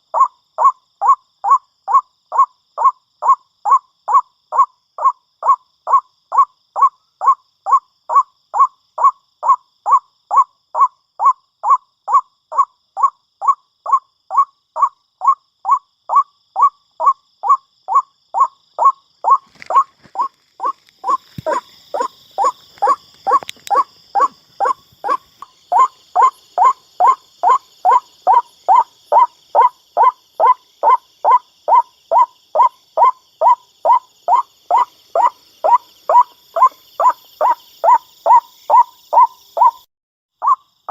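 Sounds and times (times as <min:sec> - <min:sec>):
sharp clicks: 0:22.7 - 0:23.8.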